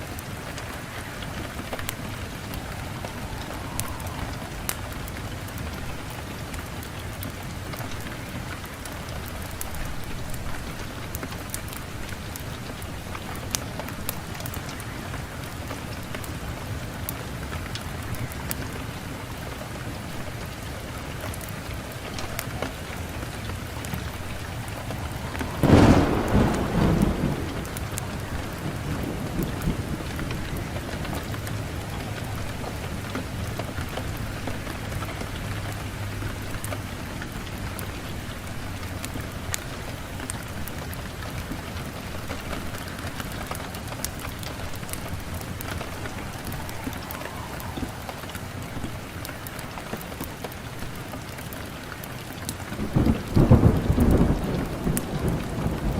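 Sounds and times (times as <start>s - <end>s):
wood fire hissing and crackling: 0.0s - 55.9s
sudden loud burst with low rumble: 24.4s - 30.1s.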